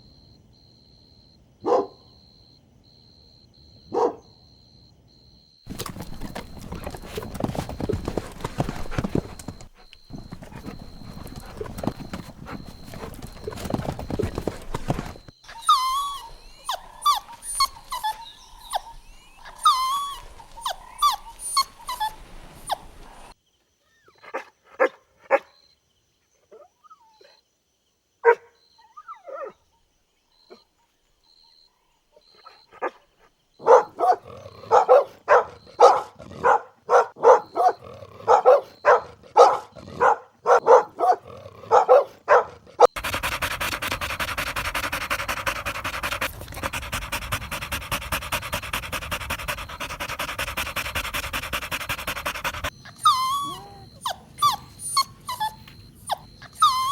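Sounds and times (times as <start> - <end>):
dense rustling: 5.7 - 15.4
puppies whining and yelping: 5.7 - 23.0, 52.2 - 56.9
puppies barking: 5.7 - 23.3, 33.6 - 56.9
puppies yipping: 5.7 - 23.3, 42.9 - 56.9.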